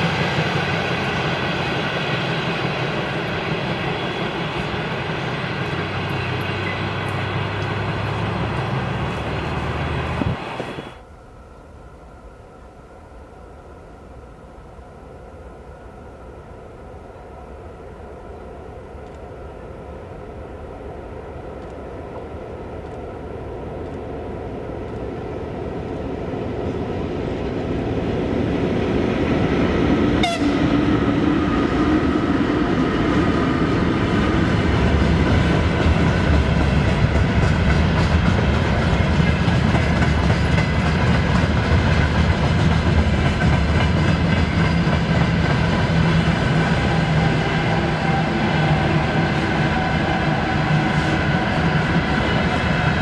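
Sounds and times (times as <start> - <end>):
train wheel clatter: 0.0 - 10.9, 33.0 - 53.0
freight train rumbling past: 0.0 - 53.0.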